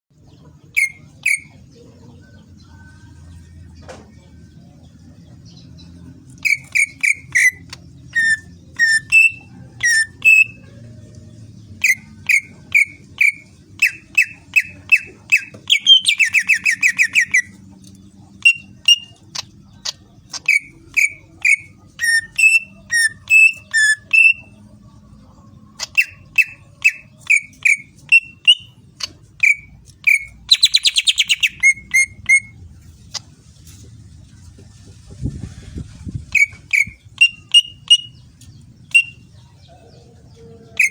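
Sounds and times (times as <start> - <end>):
bird whistling: 0.8 - 1.5, 6.4 - 10.6, 11.8 - 17.5, 18.4 - 19.2, 20.4 - 24.5, 25.9 - 28.7, 29.4 - 32.6, 36.4 - 38.2, 38.9 - 39.2
bird buzzy trill: 6.3 - 10.8, 11.8 - 17.6, 18.4 - 19.2, 20.3 - 24.5, 25.8 - 32.6, 36.3 - 38.2, 38.9 - 39.2.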